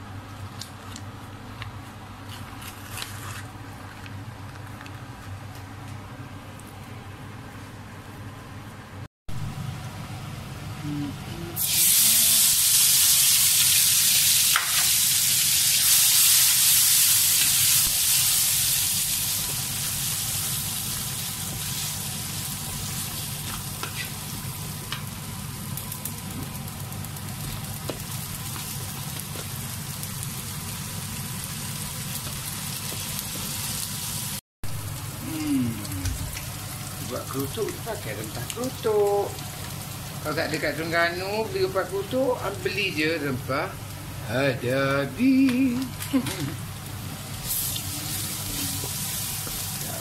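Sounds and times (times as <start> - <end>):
paste sizzling in hot oil: 11.6 - 24.6, 47.2 - 50.0.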